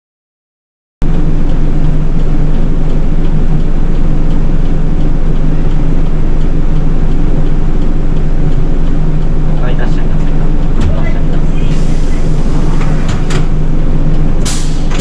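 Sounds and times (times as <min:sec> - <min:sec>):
bus engine humming: 0:01.0 - 0:15.0.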